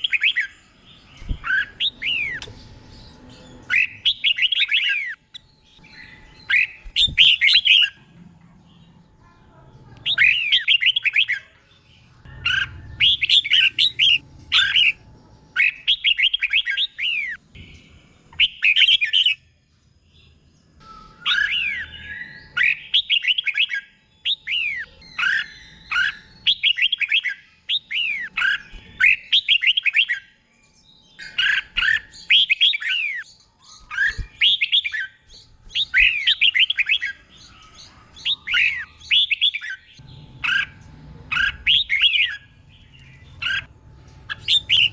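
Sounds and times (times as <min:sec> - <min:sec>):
bird singing whistled phrases: 0:03.6 - 0:05.2, 0:05.8 - 0:08.0, 0:12.5 - 0:15.0, 0:15.6 - 0:17.4, 0:18.4 - 0:19.4, 0:20.8 - 0:30.4, 0:31.2 - 0:37.6, 0:38.2 - 0:40.7, 0:41.3 - 0:42.5, 0:44.3 - 0:44.9.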